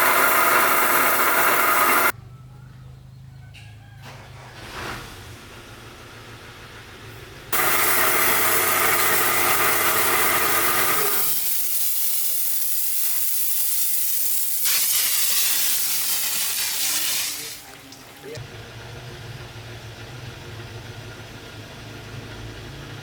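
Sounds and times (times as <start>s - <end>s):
high-pressure jet hissing: 0.0s - 2.1s, 7.6s - 17.7s.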